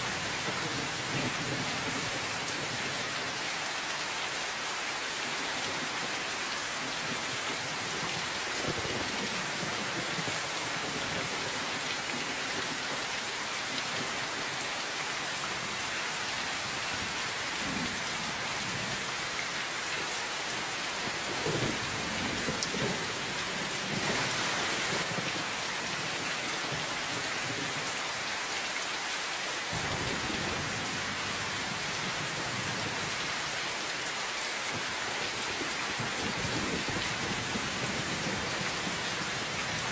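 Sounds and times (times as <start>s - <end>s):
steady rain: 0.0s - 39.9s
distant thunder rumbles: 29.7s - 31.4s.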